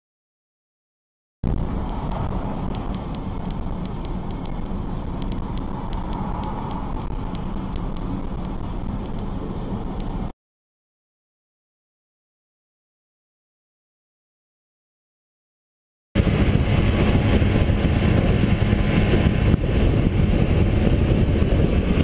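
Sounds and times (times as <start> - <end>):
vehicle and road noise: 1.4 - 10.4, 16.2 - 22.0
faint ticks: 1.9 - 9.3.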